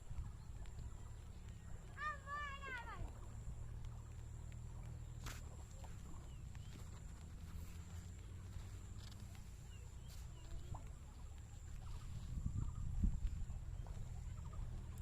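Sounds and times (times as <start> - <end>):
low steady rumble: 0.0 - 15.0
bird chirps: 8.9 - 15.0.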